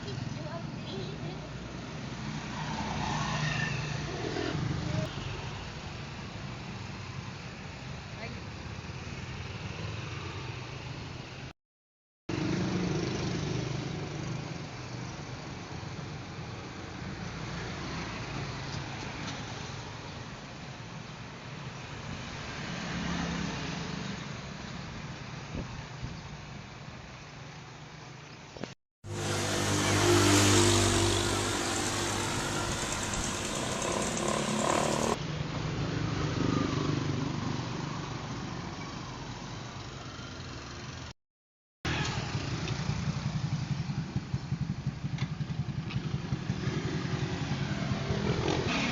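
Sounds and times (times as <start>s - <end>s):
road noise: 0.0s - 11.5s, 12.3s - 28.4s, 29.0s - 41.1s, 41.9s - 48.9s
vehicle engine running: 29.1s - 35.2s.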